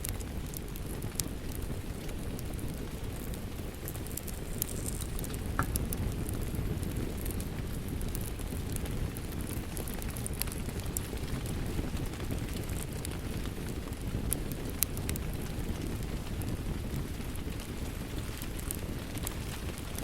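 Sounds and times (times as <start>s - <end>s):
wood fire crackling and popping: 0.0s - 20.0s
rain hiss: 1.0s - 11.6s.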